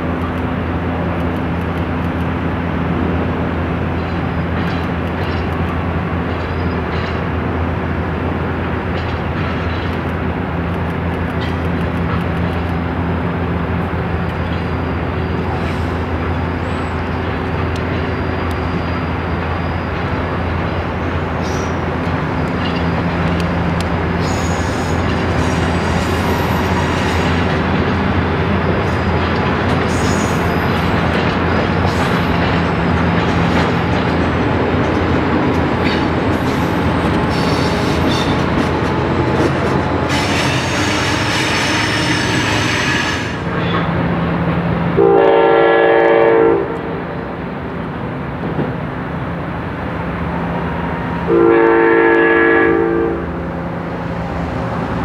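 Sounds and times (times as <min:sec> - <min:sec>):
train wheels rumbling on rail: 0:00.0 - 0:55.0
high wheel squeals: 0:14.2 - 0:20.2.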